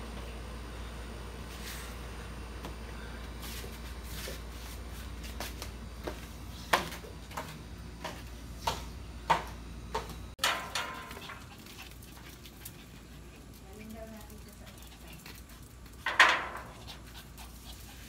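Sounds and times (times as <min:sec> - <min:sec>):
metal gate clattering: 0:10.4 - 0:11.3.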